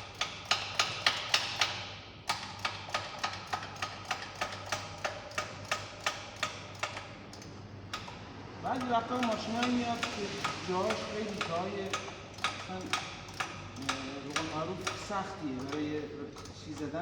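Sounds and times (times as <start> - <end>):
hand tool metallic clicking: 9.1 - 17.0.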